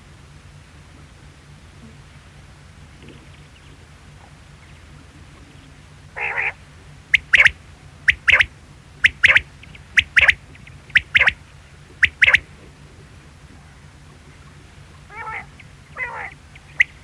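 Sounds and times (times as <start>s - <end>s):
steady low hum: 0.0s - 17.0s
quail calling: 3.1s - 12.8s, 13.6s - 17.0s.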